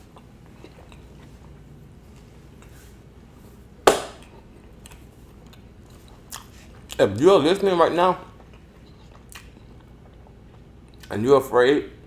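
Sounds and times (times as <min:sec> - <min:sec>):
sharp knock: 0:03.9 - 0:04.2.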